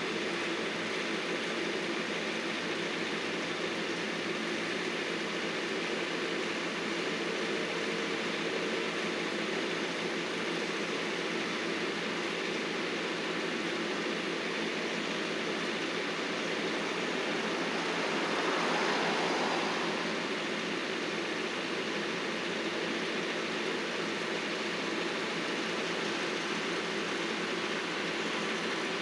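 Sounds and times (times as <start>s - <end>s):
heavy machinery engine running: 11.7s - 29.0s.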